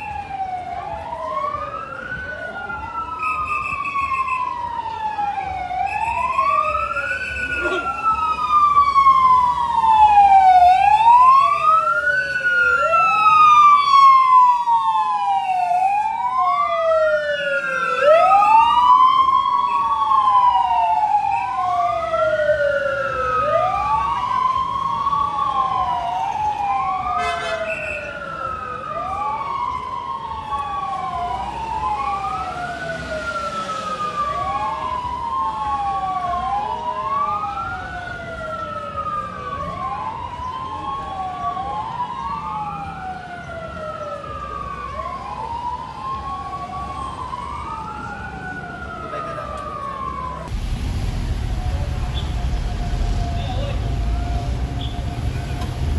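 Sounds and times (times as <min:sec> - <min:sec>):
fire truck sirens wailing: 0:00.0 - 0:55.9.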